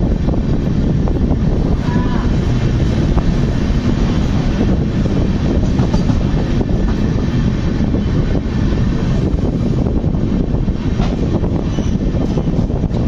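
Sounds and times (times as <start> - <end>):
train wheels rumbling on track: 0.0 - 13.0.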